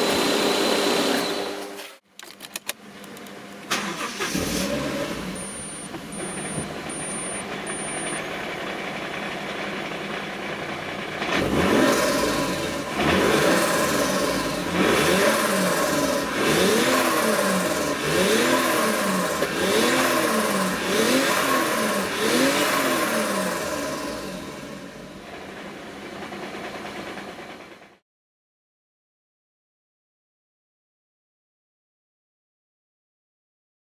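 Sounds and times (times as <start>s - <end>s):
car engine idling and revving: 3.1s - 28.0s.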